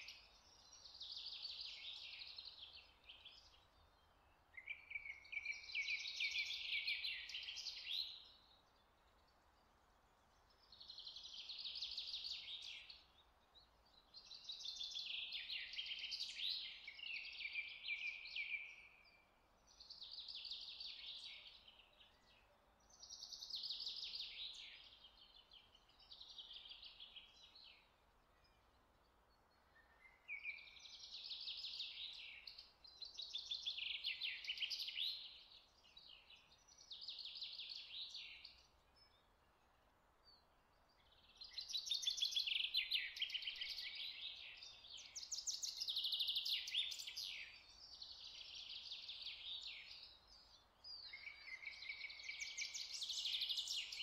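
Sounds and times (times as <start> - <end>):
birds singing fast trills: 29.4 - 39.3, 40.4 - 54.0.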